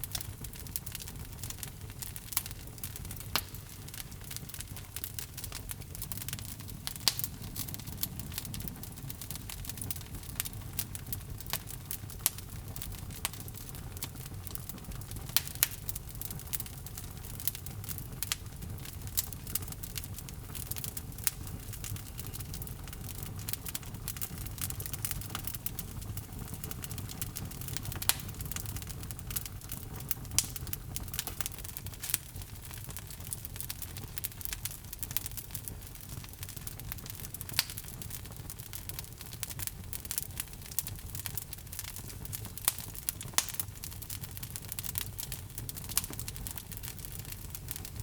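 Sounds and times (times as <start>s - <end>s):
burning wood crackling and popping: 0.0s - 48.0s
flames rumbling: 0.0s - 48.0s.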